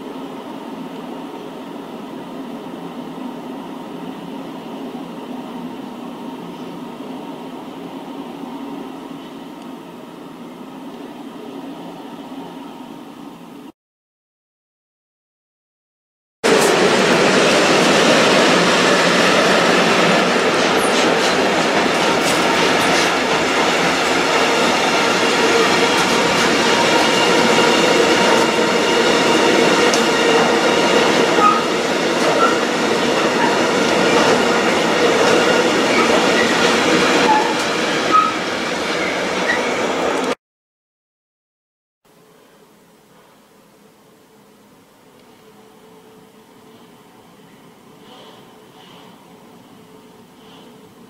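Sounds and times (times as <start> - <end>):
train wheels rolling on rails: 16.5 - 40.4
high wheel squeals: 31.3 - 31.8, 37.2 - 38.4.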